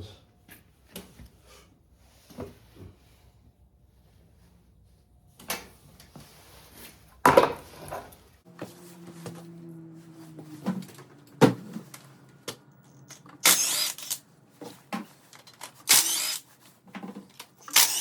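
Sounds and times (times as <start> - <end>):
hand tools and engine parts clattering: 7.2 - 13.4.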